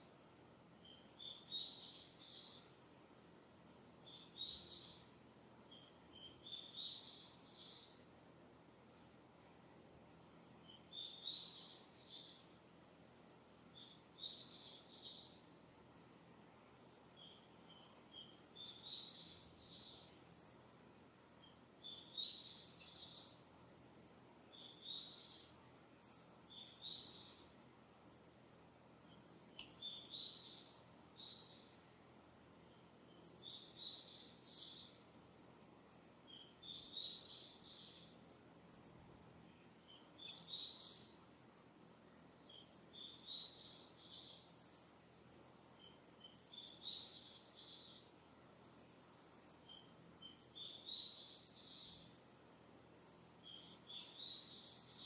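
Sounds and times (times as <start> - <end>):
distant birds singing: 0.0 - 55.0
faint breeze hiss: 0.0 - 55.0.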